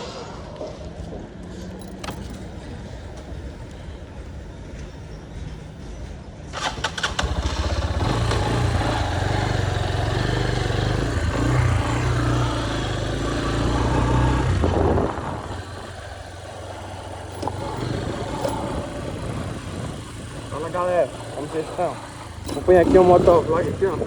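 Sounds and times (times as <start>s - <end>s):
motorcycle engine running: 6.6s - 24.0s.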